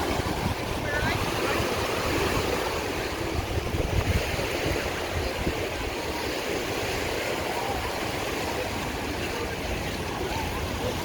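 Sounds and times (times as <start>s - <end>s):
steady rushing noise: 0.0s - 6.2s
wind buffeting microphone: 0.0s - 8.3s.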